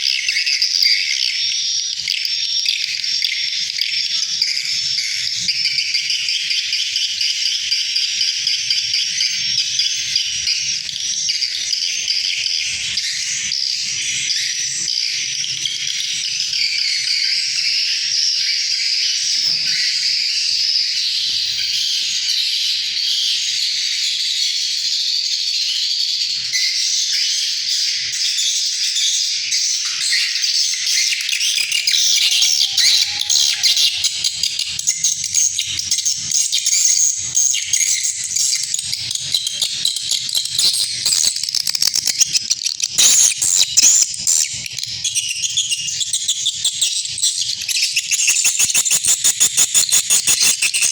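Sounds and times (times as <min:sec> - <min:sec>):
swiftlets twittering: 0:41.2 - 0:44.4, 0:45.0 - 0:50.9.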